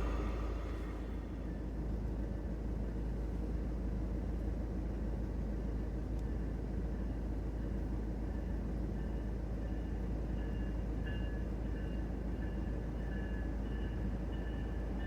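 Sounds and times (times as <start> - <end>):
train rumble: 0.0 - 5.8.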